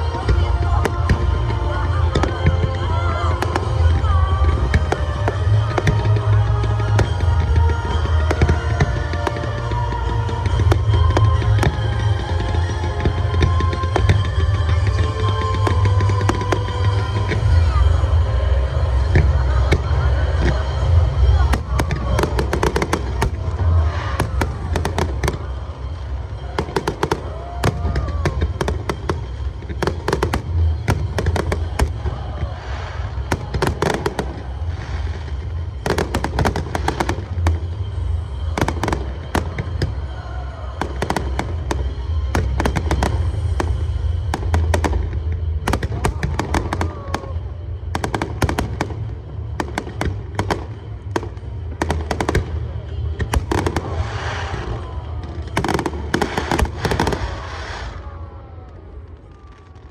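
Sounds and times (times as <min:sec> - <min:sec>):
fireworks crackling: 0:00.0 - 0:59.9
fireworks booming: 0:18.8 - 0:59.9.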